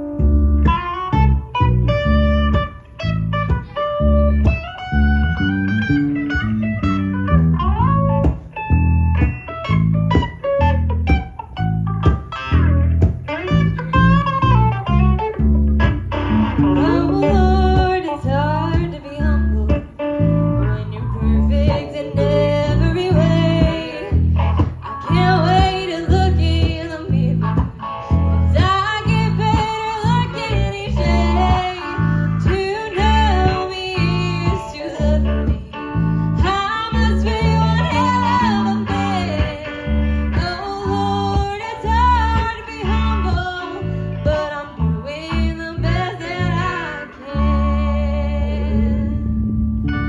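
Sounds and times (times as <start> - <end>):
live country band playing: 0.0 - 49.0
guitar: 0.0 - 50.0.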